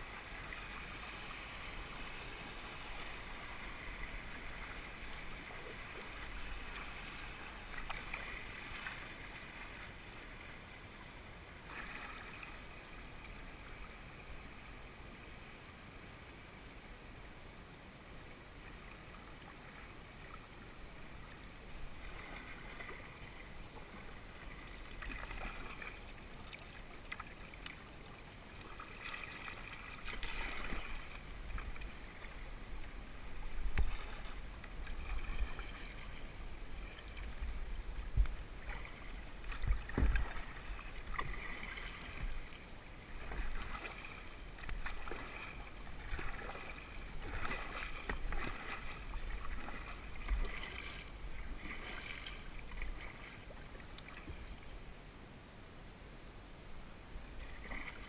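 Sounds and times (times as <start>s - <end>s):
paddle splashing in water: 0.0s - 10.5s, 11.6s - 12.8s, 21.1s - 54.8s, 57.4s - 58.0s
wind rumbling on microphone: 30.6s - 43.8s.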